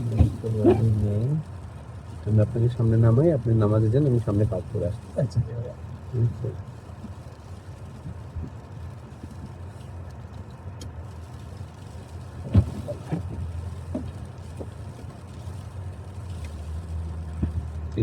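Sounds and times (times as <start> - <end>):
car engine rumble inside cabin: 0.0 - 18.0
faint clicks: 9.4 - 12.2.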